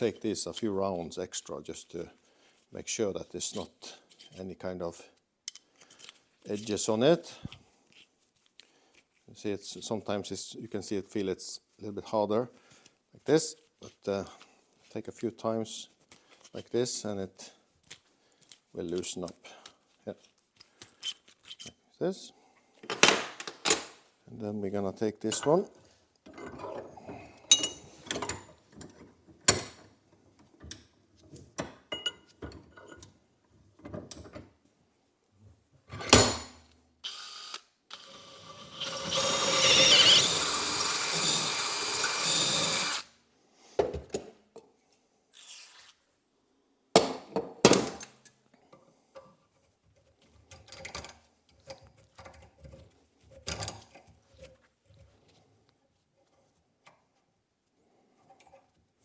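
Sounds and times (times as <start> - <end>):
metal tools clinking: 27.5 - 29.0, 31.9 - 33.1
power drill running: 37.0 - 43.1.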